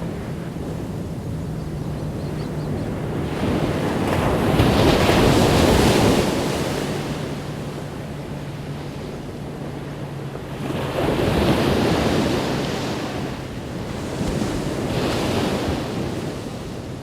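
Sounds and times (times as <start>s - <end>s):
ocean waves breaking on beach: 0.0s - 17.0s.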